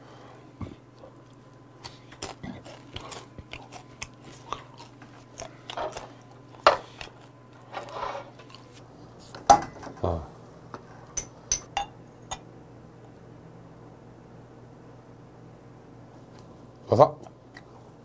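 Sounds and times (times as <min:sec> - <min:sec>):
crunching and chewing snacks: 0:01.0 - 0:08.9.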